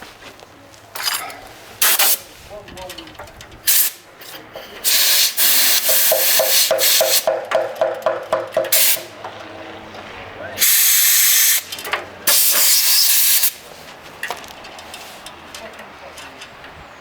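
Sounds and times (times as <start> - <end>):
compressed air hissing blasts: 1.7 - 2.4, 3.6 - 4.0, 4.8 - 7.4, 8.6 - 9.1, 10.6 - 13.7.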